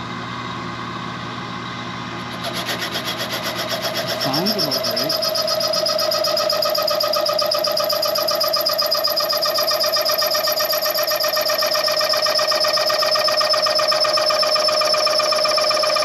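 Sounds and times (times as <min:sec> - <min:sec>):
metal cutting tool chattering: 0:02.2 - 0:16.0.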